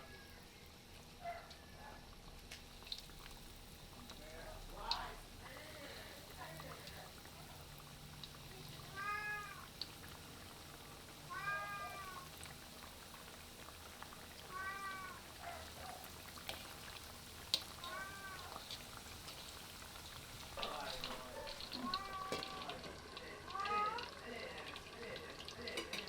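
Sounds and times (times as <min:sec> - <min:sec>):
cat meowing: 0:08.8 - 0:09.7, 0:11.3 - 0:12.4, 0:14.4 - 0:16.0, 0:17.7 - 0:18.7, 0:21.4 - 0:22.8, 0:23.5 - 0:24.1.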